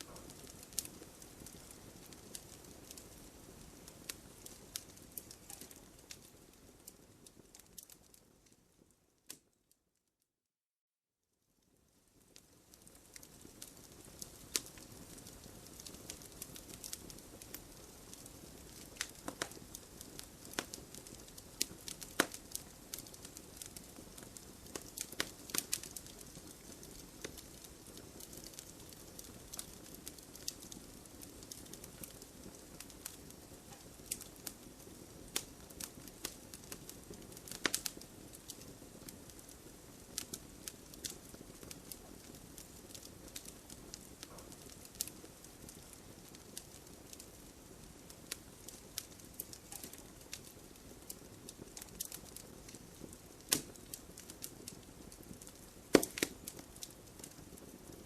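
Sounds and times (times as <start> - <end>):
wood fire hissing: 0.0 - 8.3, 11.8 - 58.0
logs popping and snapping: 55.9 - 56.6.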